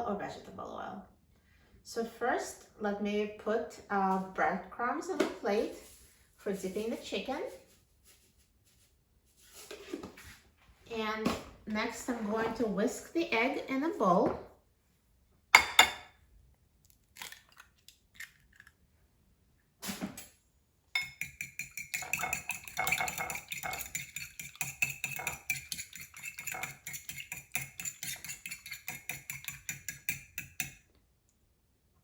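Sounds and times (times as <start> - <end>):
whisk clicking against bowl: 21.0 - 30.8.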